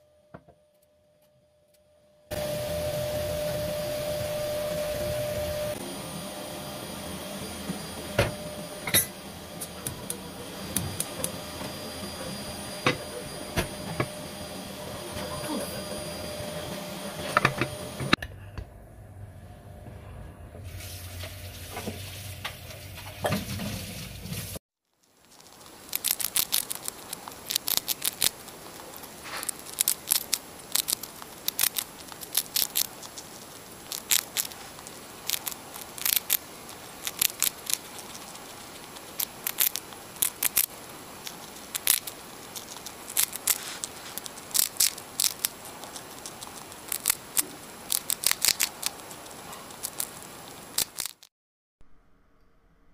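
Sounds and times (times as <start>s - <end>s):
low hum: 0.0s - 21.4s, 51.8s - 52.9s.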